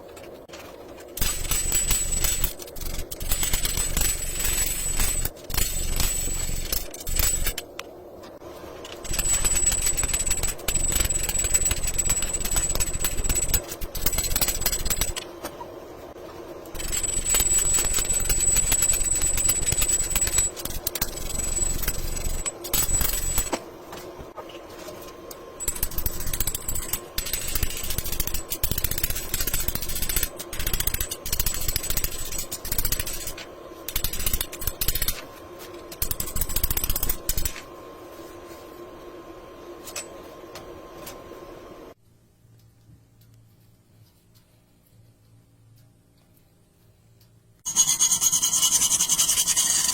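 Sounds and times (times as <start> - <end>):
thin high whine: 0.0 - 42.0, 47.6 - 49.9
mechanical hammering on steel: 1.2 - 7.6, 9.0 - 15.2, 16.7 - 23.6, 25.6 - 35.3, 35.9 - 37.7.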